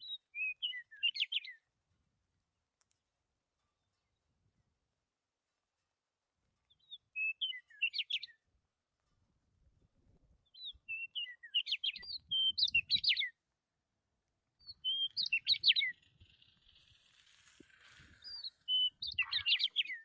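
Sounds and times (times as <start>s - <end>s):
bird song chirps and whistles: 0.0s - 1.6s, 6.7s - 8.4s, 10.4s - 13.4s, 14.6s - 20.0s.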